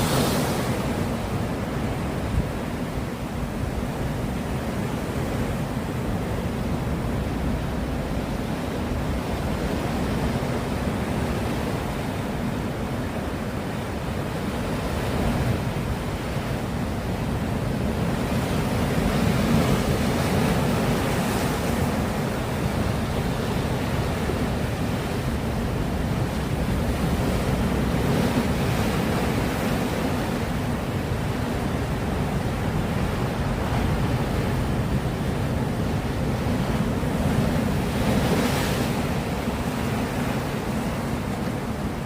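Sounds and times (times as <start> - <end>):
surf breaking on shore: 0.0 - 2.2, 18.2 - 42.0.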